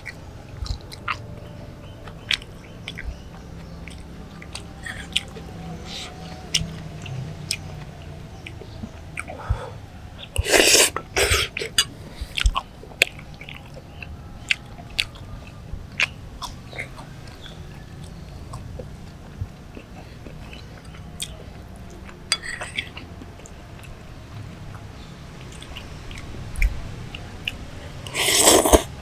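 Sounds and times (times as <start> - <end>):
person chewing noodles: 0.5 - 9.5, 10.2 - 15.3, 27.4 - 29.0.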